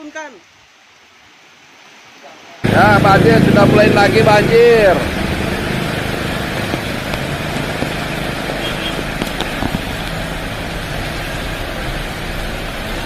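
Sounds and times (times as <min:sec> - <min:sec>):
heavy rain: 0:00.0 - 0:13.0
strong wind: 0:02.6 - 0:13.0.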